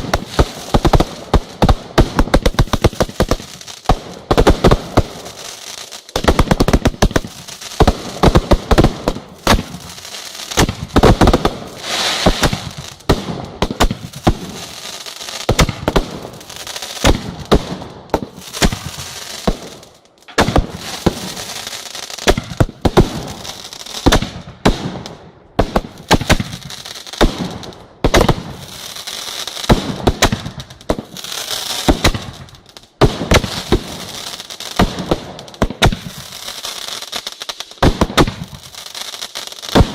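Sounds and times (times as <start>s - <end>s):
fireworks bangs: 0.0s - 37.2s, 37.8s - 39.9s
fireworks crackling: 0.0s - 39.9s.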